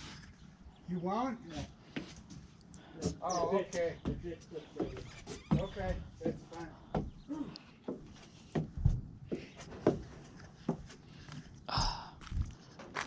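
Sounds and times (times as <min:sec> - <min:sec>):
footsteps and knocks: 0:01.5 - 0:11.5.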